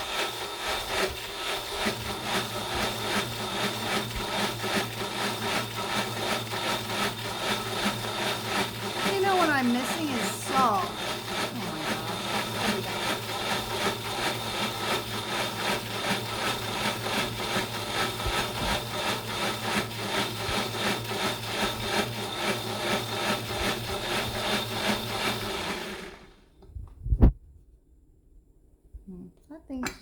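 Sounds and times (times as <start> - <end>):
blender churning thick sauce: 0.0 - 26.4.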